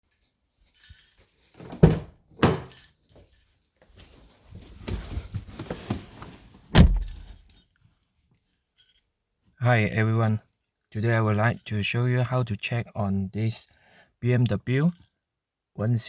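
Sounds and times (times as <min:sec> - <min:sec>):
jingling: 0:00.0 - 0:06.1, 0:07.0 - 0:07.8, 0:10.6 - 0:11.9
knocks and thumps: 0:01.6 - 0:02.8
rustling: 0:03.0 - 0:08.0.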